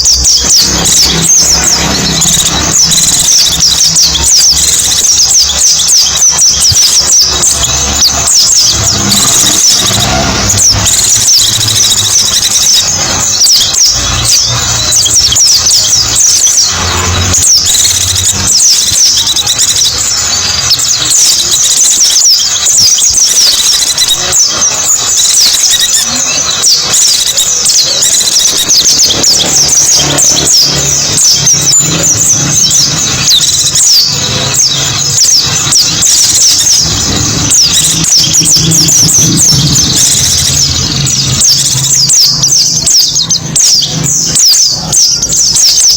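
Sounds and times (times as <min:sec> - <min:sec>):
birds twittering: 0:00.0 - 0:45.9.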